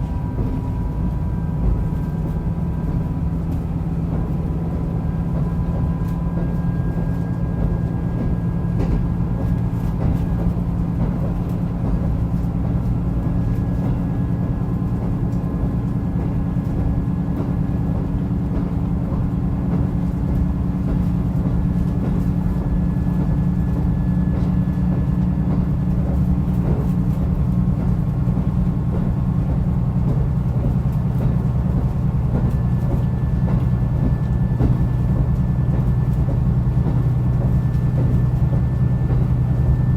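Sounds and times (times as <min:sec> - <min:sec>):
diesel engine drone: 0:00.0 - 0:39.9
wheels rolling on rail: 0:00.0 - 0:39.9.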